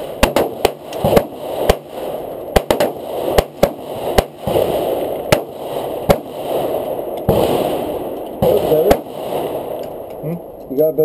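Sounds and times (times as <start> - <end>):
handgun shots: 2.6 - 4.6.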